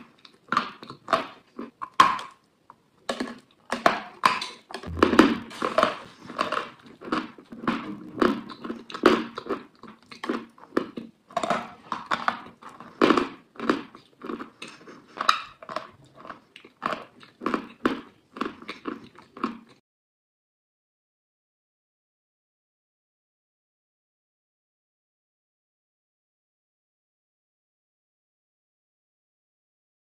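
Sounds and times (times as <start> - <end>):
crunchy chewing: 6.1 - 19.8.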